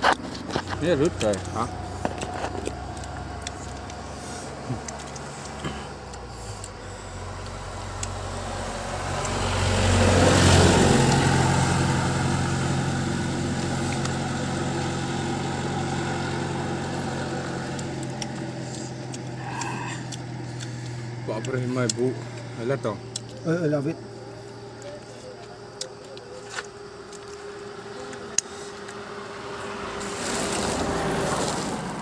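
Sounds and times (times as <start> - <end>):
engine hum: 0.0 - 32.0
vehicle passing by: 0.0 - 32.0.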